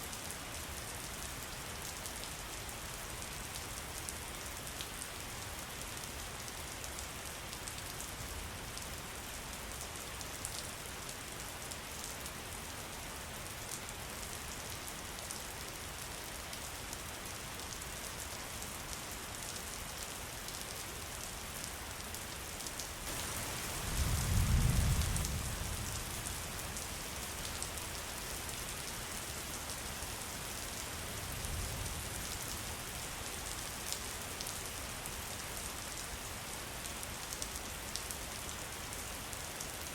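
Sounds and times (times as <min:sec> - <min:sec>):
rain falling: 0:00.1 - 0:39.9.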